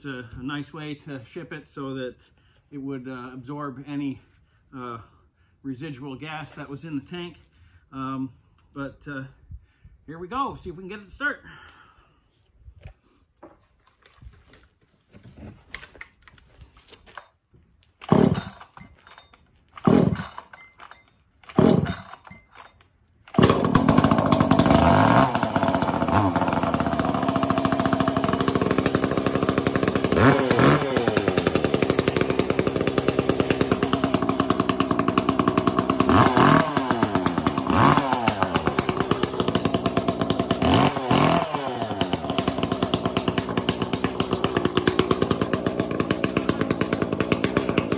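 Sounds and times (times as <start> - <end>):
chainsaw starter pulls: 13.8 - 47.9
chainsaw engine running: 18.0 - 47.9.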